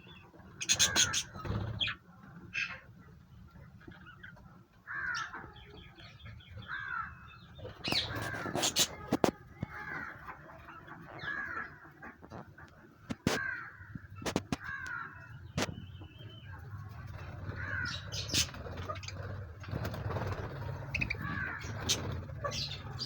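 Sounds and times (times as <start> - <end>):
parrots calling harshly: 0.6 - 2.0, 7.8 - 10.4, 11.0 - 12.4, 20.3 - 23.0.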